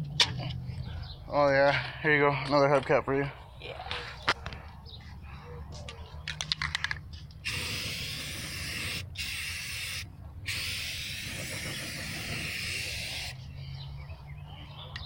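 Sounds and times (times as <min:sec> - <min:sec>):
spray hissing: 0:07.4 - 0:13.4.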